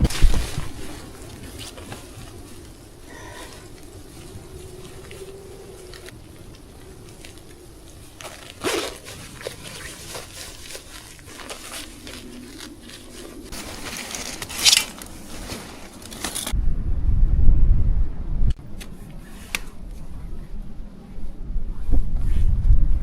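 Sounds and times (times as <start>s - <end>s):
wind buffeting microphone: 0.0s - 8.2s, 16.5s - 23.0s
crunching and scraping in snow: 0.0s - 16.5s.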